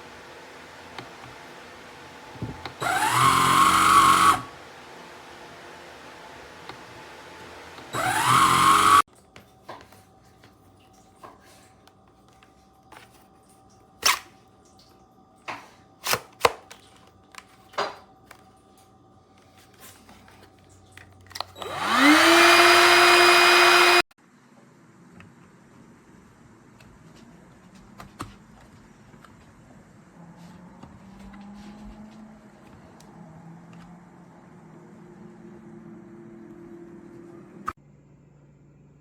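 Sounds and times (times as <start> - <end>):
handheld vacuum motor whine: 0.0 - 9.1, 21.3 - 24.2.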